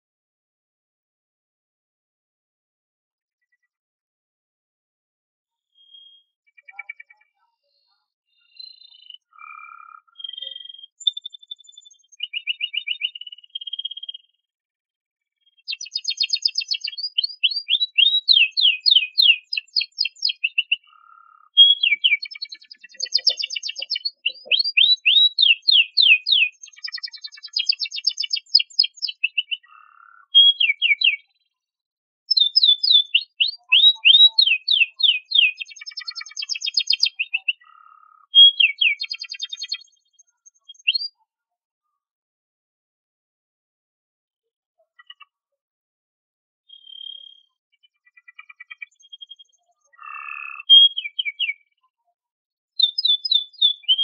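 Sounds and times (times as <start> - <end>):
canary singing trills: 5.7 - 14.3, 15.5 - 31.4, 32.3 - 41.3, 46.7 - 51.7, 52.8 - 54.0.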